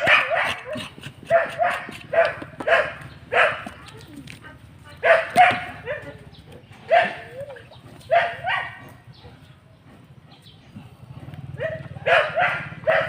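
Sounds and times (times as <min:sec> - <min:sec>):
dog barking: 0:00.0 - 0:03.8, 0:05.0 - 0:09.5, 0:11.5 - 0:13.0.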